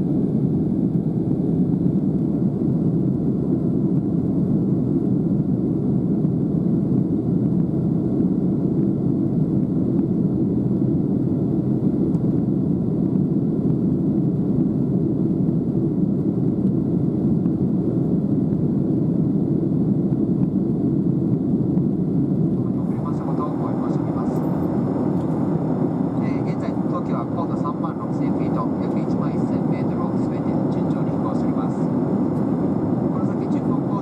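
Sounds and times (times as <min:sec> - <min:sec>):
airliner cabin engine rumble: 0:00.0 - 0:34.0.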